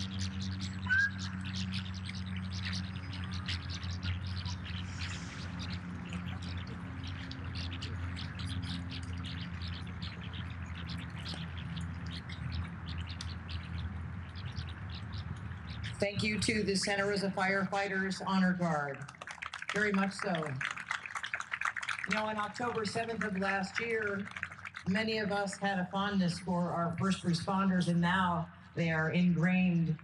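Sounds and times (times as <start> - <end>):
small birds chirping: 0.0 - 18.5
steady low hum: 0.0 - 30.0
short rising whistle: 0.8 - 1.2.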